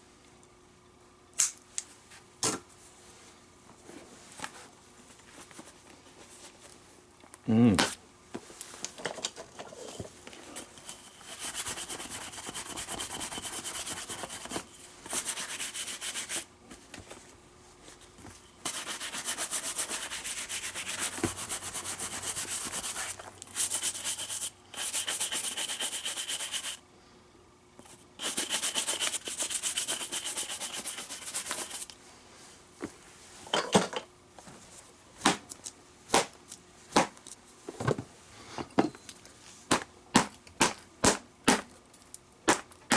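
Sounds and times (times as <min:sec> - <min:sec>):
leather glove being rubbed: 0:11.2 - 0:16.5, 0:18.7 - 0:26.8, 0:28.2 - 0:31.9.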